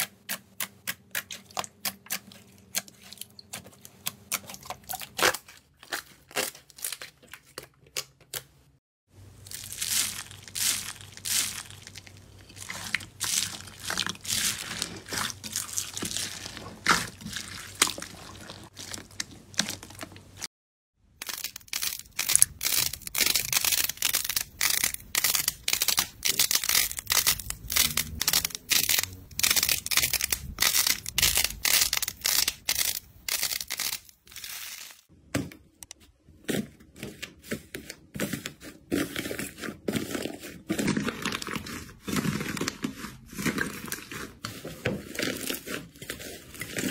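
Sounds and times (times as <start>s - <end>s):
slime crackling and popping: 9.4s - 20.2s, 21.2s - 35.0s.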